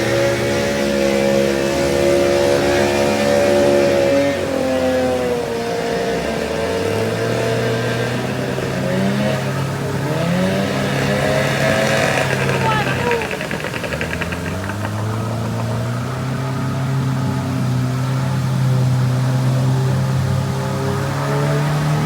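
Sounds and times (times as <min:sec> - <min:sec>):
engine running: 0:09.8 - 0:18.5.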